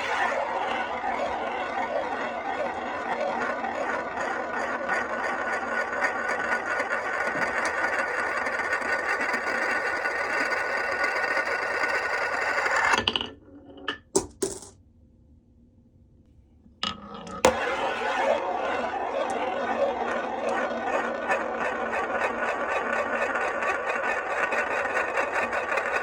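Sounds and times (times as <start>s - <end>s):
marbles rattling down wooden run: 20.2s - 26.0s.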